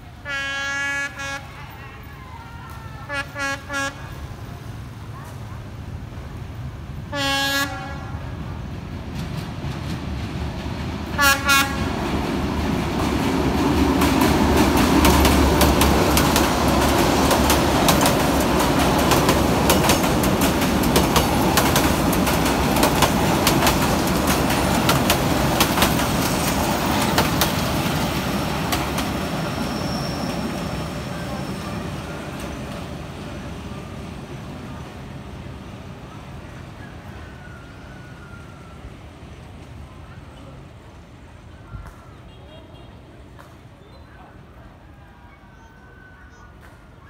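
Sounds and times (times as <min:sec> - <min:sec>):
train horn blasts: 0:00.2 - 0:01.6, 0:03.1 - 0:04.2, 0:07.1 - 0:08.4, 0:11.2 - 0:11.9
train wheels clicking on rail joints: 0:12.0 - 0:30.7.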